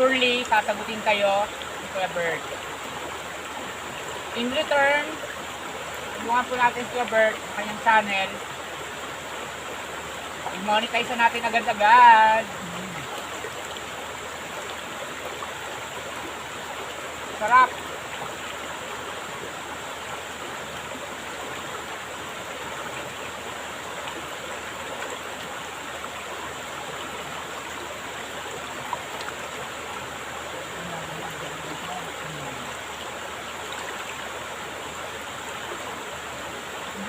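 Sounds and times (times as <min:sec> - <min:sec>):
stream water rushing: 0:00.0 - 0:37.0
faint voice: 0:12.5 - 0:13.1, 0:30.7 - 0:32.8.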